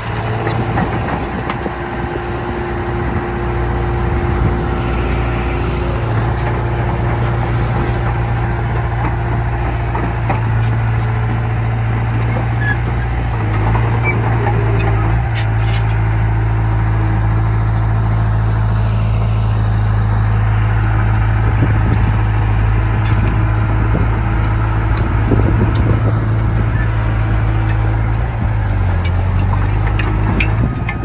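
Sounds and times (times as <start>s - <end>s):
bulldozer diesel engine running: 0.0s - 31.0s
metallic clanks: 24.4s - 31.0s.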